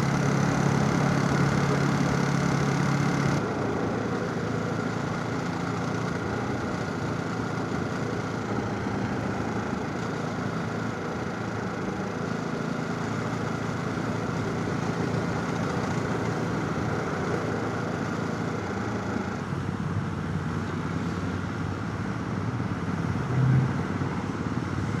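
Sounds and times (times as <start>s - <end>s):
motorcycle engine running: 0.0s - 19.5s
road noise: 0.0s - 25.0s.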